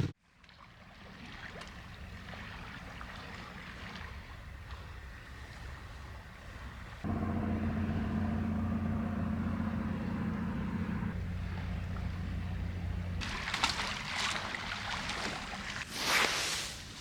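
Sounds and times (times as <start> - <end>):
motorcycle engine humming: 7.0 - 14.4.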